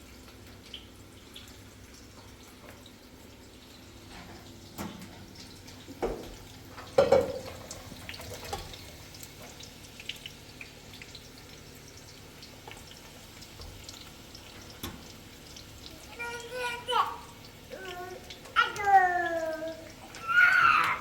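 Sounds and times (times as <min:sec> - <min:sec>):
water trickling and dripping: 0:00.0 - 0:21.0
knocks and clatters: 0:06.0 - 0:07.6.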